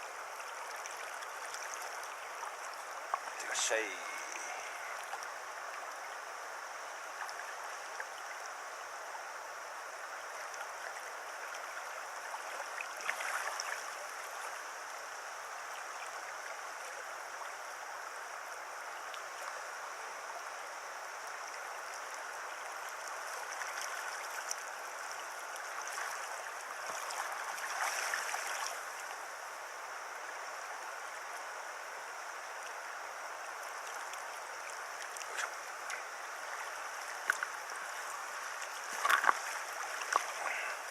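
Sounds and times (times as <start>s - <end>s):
stream water rushing and gurgling: 0.0s - 40.9s
water splashing: 11.6s - 14.0s, 23.3s - 29.0s, 33.8s - 40.9s.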